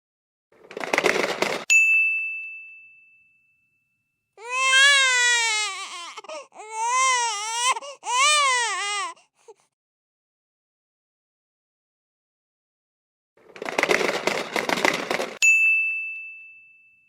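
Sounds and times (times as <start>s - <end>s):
bell-like ding: 1.7s - 4.3s, 15.4s - 17.0s
baby crying: 4.4s - 9.7s.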